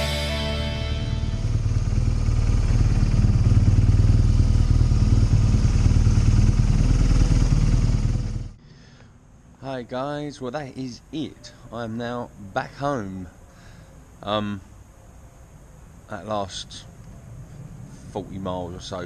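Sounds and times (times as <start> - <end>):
motorcycle engine rumble: 0.0 - 9.5
road and wind noise: 0.0 - 19.0.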